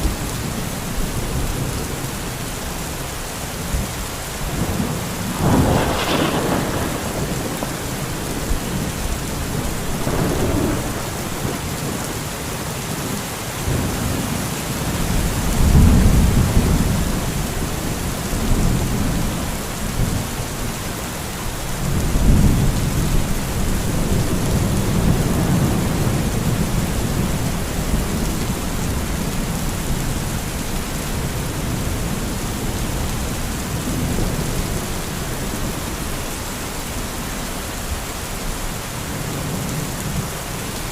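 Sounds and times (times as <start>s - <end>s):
heavy rain: 0.0s - 40.9s
rolling thunder: 4.5s - 12.2s, 14.9s - 20.3s.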